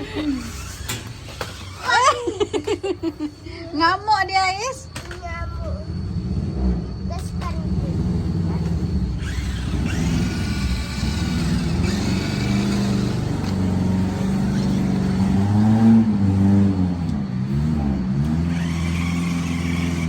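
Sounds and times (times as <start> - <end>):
toy car motor whining: 0.0 - 2.5, 8.1 - 20.0.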